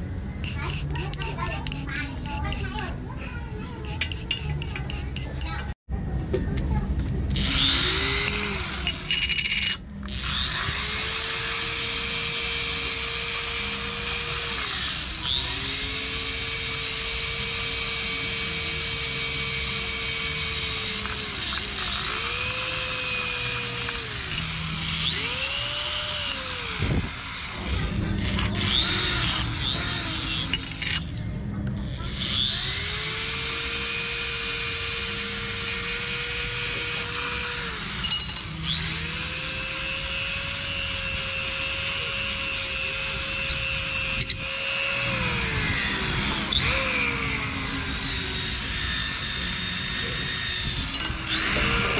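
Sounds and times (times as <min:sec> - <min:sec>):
electric drill boring into metal: 0:07.4 - 0:51.9.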